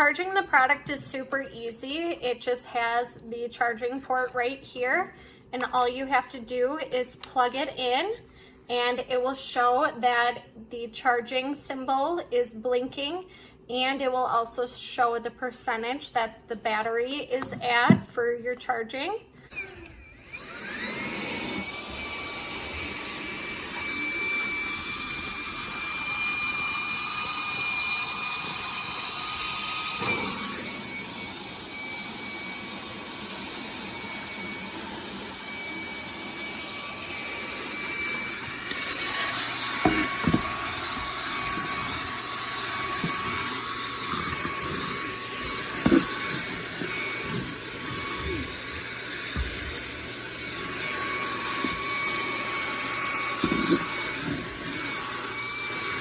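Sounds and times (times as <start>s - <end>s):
handheld vacuum cleaner whine: 19.4s - 56.0s.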